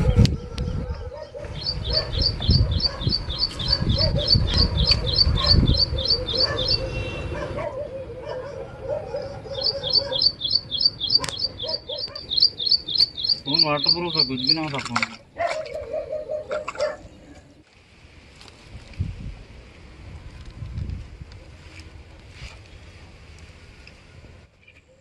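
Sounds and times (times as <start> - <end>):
bird chirping rapidly: 0.8 - 7.4, 9.1 - 14.8.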